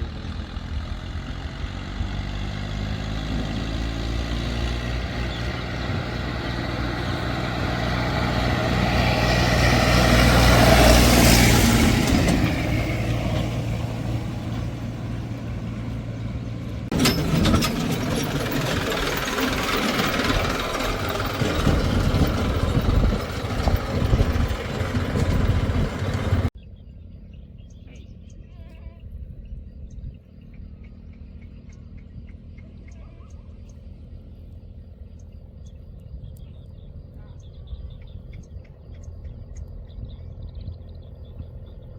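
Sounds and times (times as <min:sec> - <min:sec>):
rough machine noise: 0:00.0 - 0:26.5
heavy diesel engines running: 0:00.0 - 0:41.9
faint bird calls: 0:26.6 - 0:41.9.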